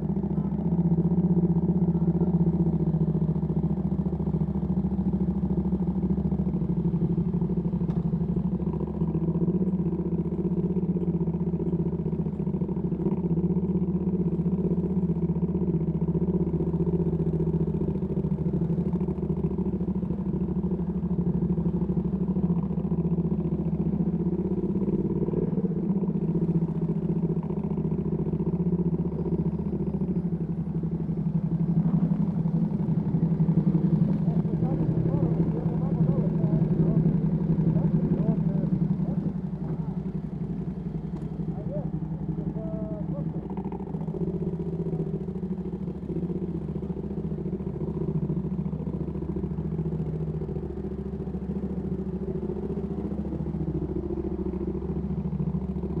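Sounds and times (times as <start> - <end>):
motorcycle engine running at low revs: 0.0 - 56.0.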